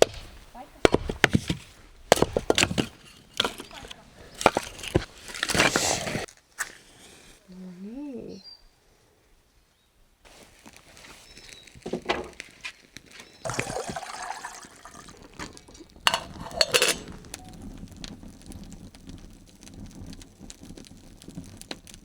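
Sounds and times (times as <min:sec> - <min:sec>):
water pouring and sloshing: 0:13.4 - 0:17.3.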